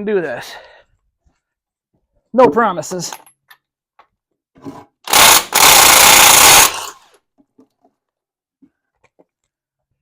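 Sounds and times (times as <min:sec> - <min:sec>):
power tool bursts: 0:05.1 - 0:07.1.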